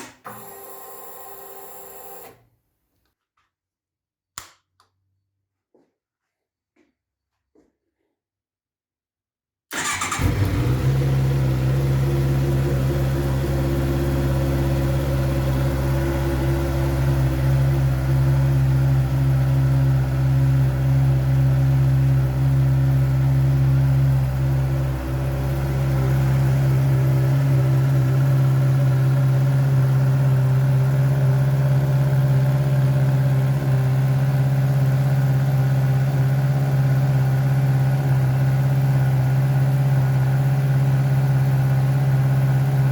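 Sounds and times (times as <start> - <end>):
motorcycle engine starting and idling: 9.7 - 42.9.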